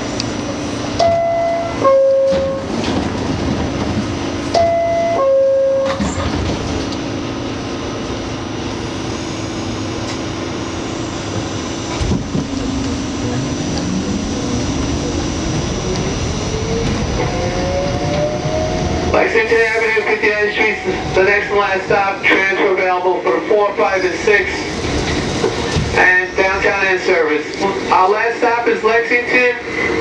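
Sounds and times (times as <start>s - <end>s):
subway car rumbling: 0.0s - 30.0s.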